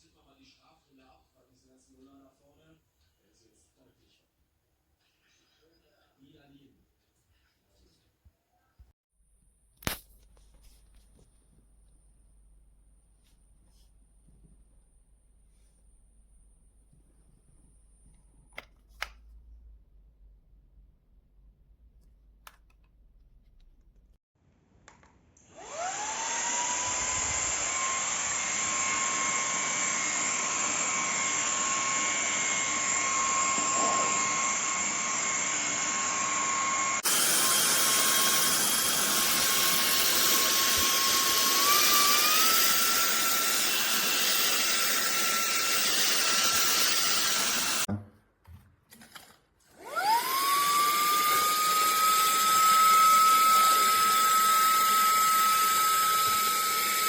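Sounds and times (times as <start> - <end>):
handheld vacuum cleaner running: 25.5 - 47.9, 49.7 - 57.0.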